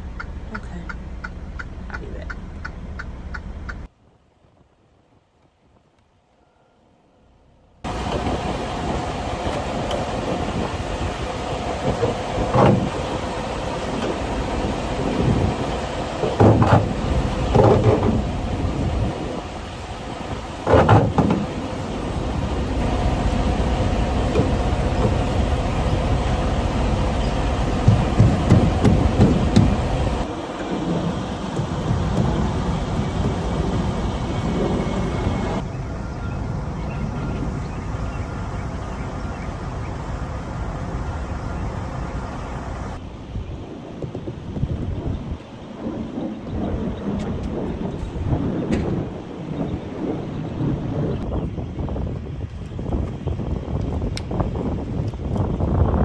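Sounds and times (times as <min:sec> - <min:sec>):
truck road and engine noise: 0:00.0 - 0:03.9, 0:07.3 - 0:56.0
thumps and rattles from bumps: 0:11.6 - 0:19.2, 0:20.3 - 0:21.9, 0:27.1 - 0:35.6
knocks: 0:15.7 - 0:18.4, 0:20.6 - 0:21.6, 0:27.2 - 0:30.2.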